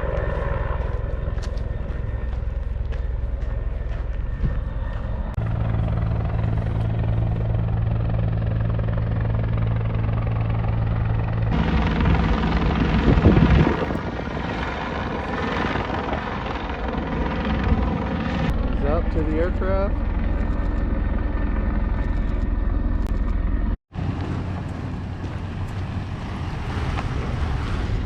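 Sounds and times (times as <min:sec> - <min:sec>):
helicopter rotor chopping: 0:00.0 - 0:28.0.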